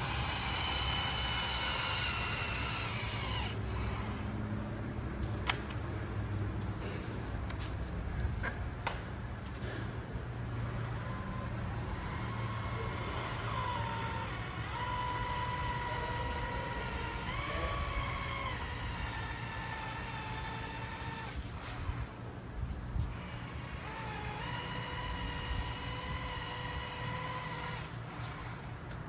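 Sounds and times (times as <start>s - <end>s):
vehicle engine humming: 0.0s - 9.6s.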